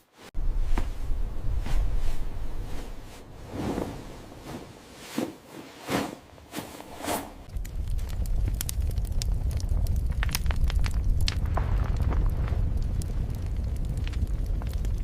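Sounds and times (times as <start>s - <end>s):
low rumble: 0.4s - 4.5s, 6.9s - 15.0s
soft whooshes: 0.4s - 7.5s
fire-like crackling: 6.8s - 15.0s.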